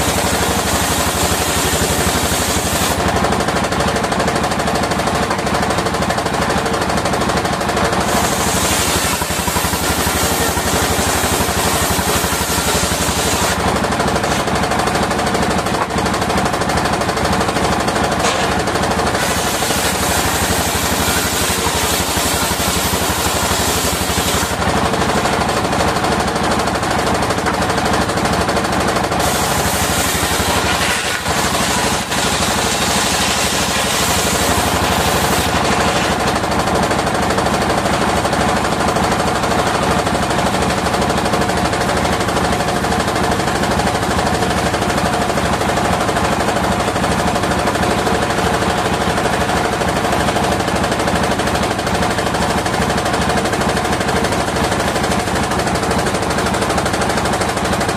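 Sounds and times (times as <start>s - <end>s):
blade hissing through wood: 0.0s - 3.0s, 8.0s - 13.6s, 18.2s - 24.6s, 29.2s - 36.3s
sawmill engine chugging: 0.0s - 57.9s
saw blade whine: 7.8s - 16.0s, 17.4s - 37.1s.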